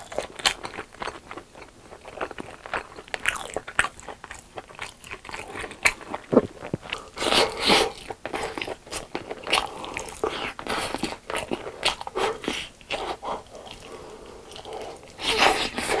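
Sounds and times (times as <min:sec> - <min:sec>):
crunchy bites and chewing: 0:00.0 - 0:10.1
eating crackling: 0:00.0 - 0:16.0.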